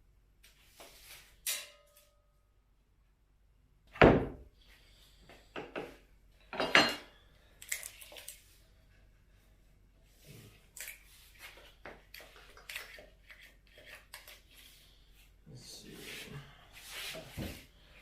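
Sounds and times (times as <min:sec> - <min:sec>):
loud knocks on workbench: 0:04.0 - 0:04.4.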